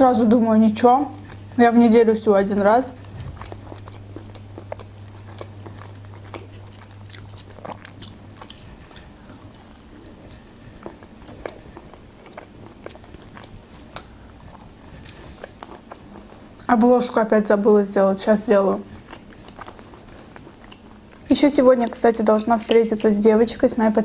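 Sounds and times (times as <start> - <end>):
biting and chewing: 2.5 - 17.2, 18.7 - 21.3.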